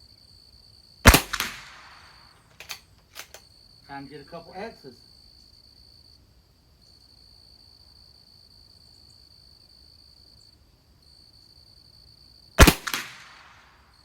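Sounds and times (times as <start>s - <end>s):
insects trilling: 0.0s - 14.0s
rifle shot with echo: 1.0s - 3.4s, 12.6s - 13.8s.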